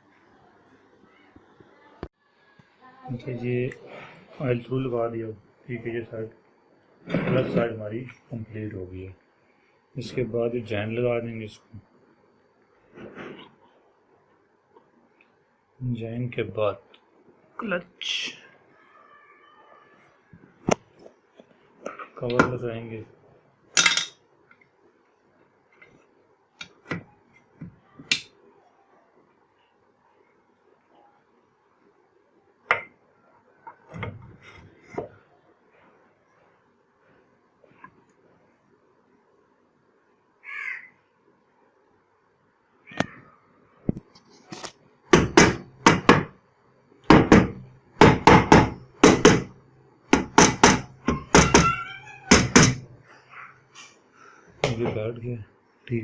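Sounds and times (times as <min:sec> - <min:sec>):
hammer knocking on metal: 0:47.1 - 0:49.5, 0:50.1 - 0:52.8.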